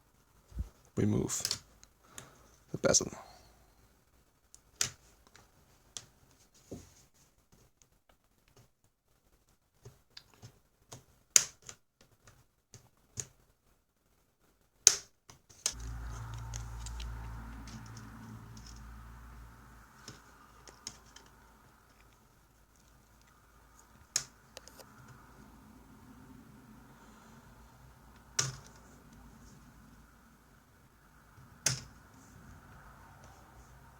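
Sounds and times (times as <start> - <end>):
low rumble: 15.8 - 20.6.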